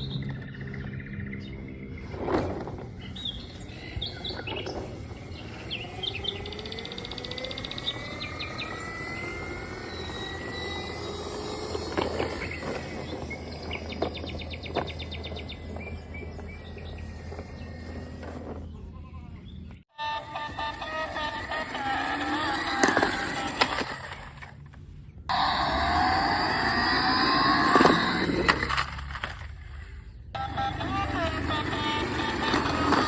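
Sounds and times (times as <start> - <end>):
faint rising whine: 0.0 - 18.8
birds chirping and trilling: 0.0 - 19.9, 29.6 - 33.0
low hum: 0.0 - 33.0.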